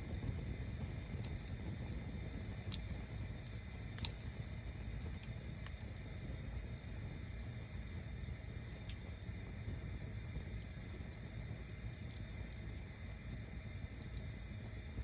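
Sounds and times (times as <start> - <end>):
bonfire rumbling: 0.0 - 15.0
burning wood crackling and popping: 0.0 - 15.0.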